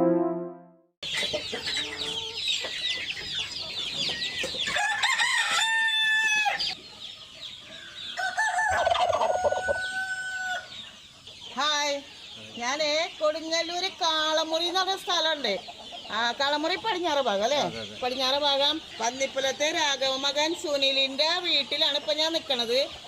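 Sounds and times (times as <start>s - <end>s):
chickens clucking and cheeping: 1.0s - 23.0s
rooster crowing: 4.7s - 6.8s, 8.2s - 10.7s.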